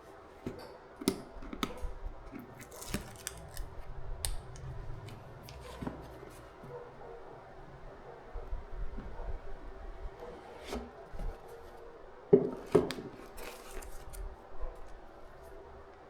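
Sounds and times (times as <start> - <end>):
packaging clicks and scrapes: 0.5 - 6.6, 12.6 - 15.0
packaging rustling: 2.3 - 6.6, 12.6 - 14.4.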